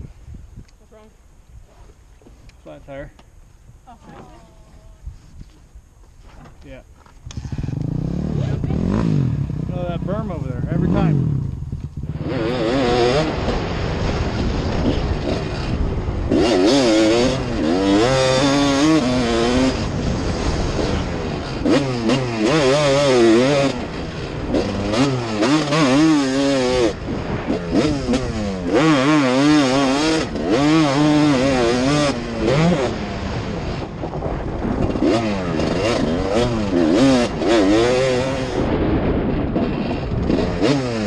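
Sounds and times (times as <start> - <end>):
dirt bike engine revving: 7.2 - 41.0.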